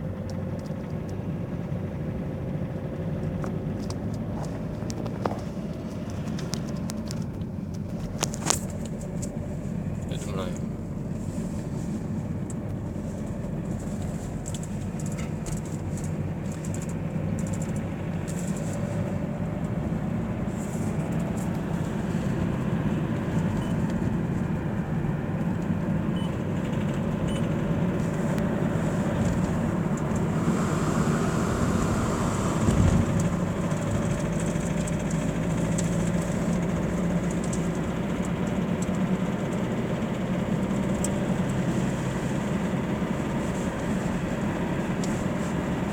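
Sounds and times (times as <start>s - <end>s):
car engine and road drone: 0.0s - 45.9s
faint whine: 27.2s - 34.3s.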